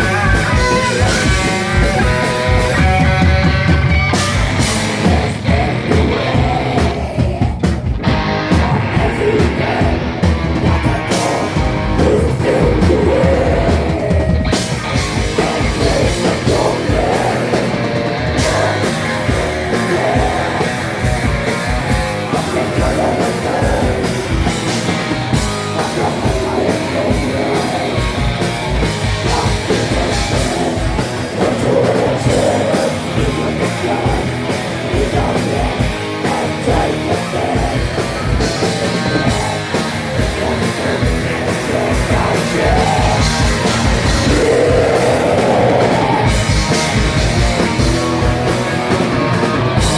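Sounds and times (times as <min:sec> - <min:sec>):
rock band playing live: 0:00.0 - 0:49.9.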